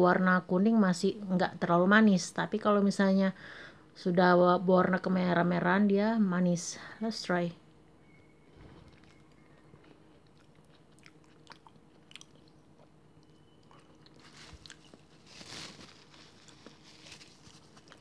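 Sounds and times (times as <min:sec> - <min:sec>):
chewing soft fruit: 0:08.9 - 0:15.3, 0:16.0 - 0:18.0.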